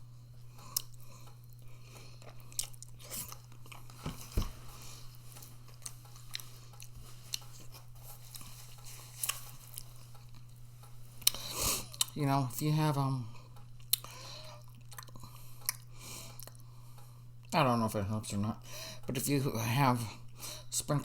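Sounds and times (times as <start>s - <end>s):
steady low hum: 0.0s - 21.0s
person chewing food: 0.1s - 12.2s, 13.3s - 17.5s.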